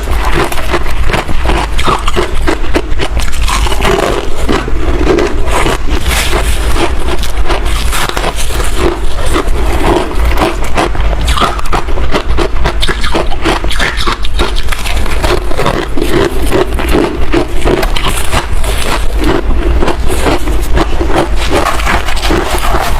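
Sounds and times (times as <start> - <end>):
chewing and crunching frost: 0.0 - 22.9.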